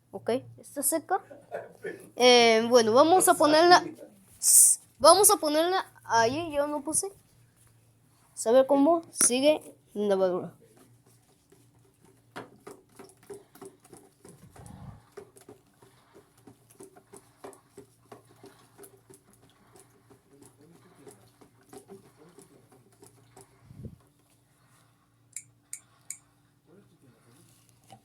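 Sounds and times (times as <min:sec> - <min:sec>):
washing machine humming: 0:00.1 - 0:07.6.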